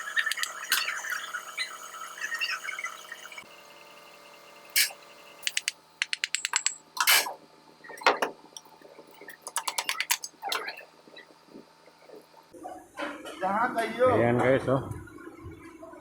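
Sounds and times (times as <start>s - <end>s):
ratchet clicking: 4.8s - 6.8s
metal knocks and clinks: 5.5s - 7.2s.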